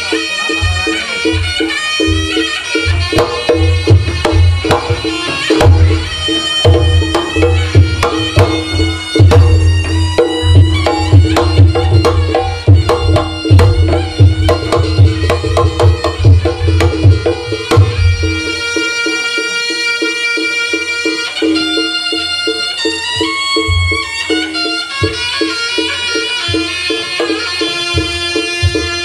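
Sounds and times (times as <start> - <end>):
hand drum strokes: 0.0 - 20.5
pitched percussion: 0.0 - 29.0.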